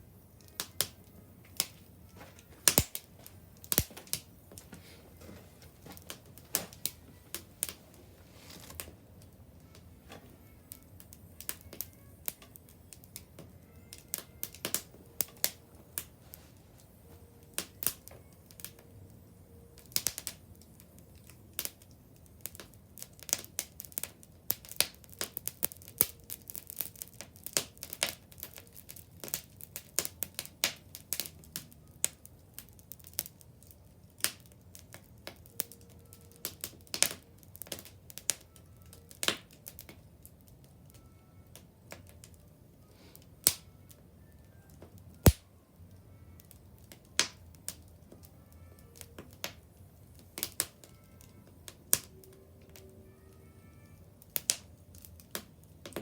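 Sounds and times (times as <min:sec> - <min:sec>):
wood bonfire crackling: 0:00.0 - 0:56.0
sharp pops and snaps: 0:02.6 - 0:04.8, 0:45.2 - 0:45.4.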